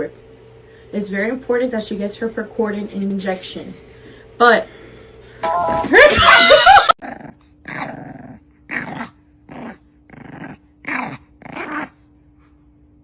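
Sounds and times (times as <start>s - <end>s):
dog growling: 7.0s - 12.0s.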